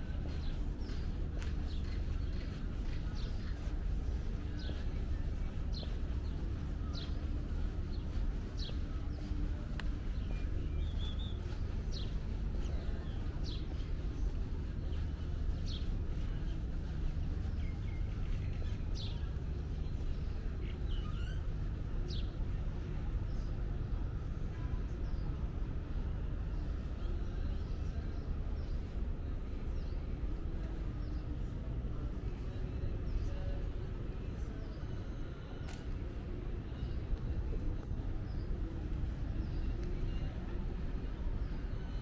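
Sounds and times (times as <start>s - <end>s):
low rumble of city background: 0.0s - 42.0s.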